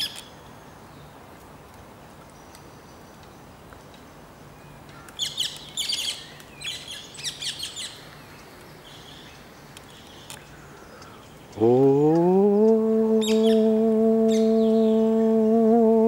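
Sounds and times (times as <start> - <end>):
faint outdoor background: 0.0 - 16.0
small birds chirping: 0.0 - 16.0
loud low tone gliding up: 11.6 - 16.0.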